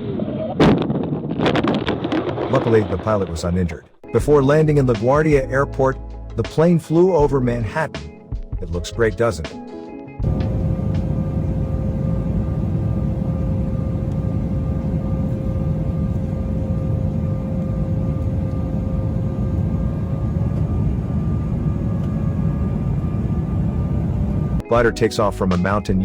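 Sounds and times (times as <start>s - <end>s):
airliner cabin engine rumble: 1.4s - 5.8s, 10.2s - 26.0s
steady whining tone: 10.2s - 24.7s.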